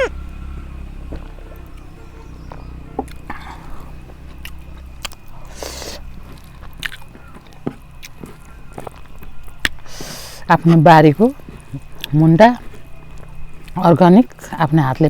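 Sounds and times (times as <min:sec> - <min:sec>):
person chewing food: 0:02.4 - 0:13.8
small clicks smacks and crunches: 0:04.1 - 0:05.4, 0:06.3 - 0:09.9.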